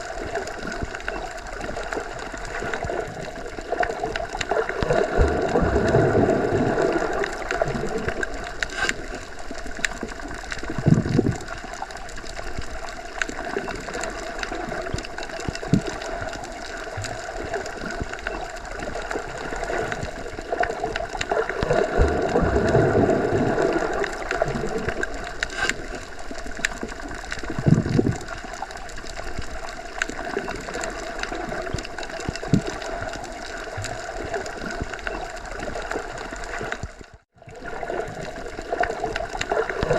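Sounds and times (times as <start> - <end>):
muffled underwater rushing hum: 4.7 - 11.5.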